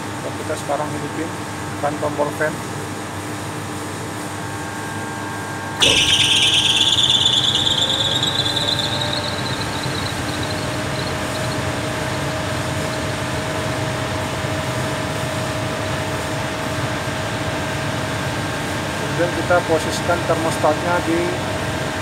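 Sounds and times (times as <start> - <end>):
air conditioner fan spinning up: 0.0 - 16.2
high fan whine: 0.0 - 17.3.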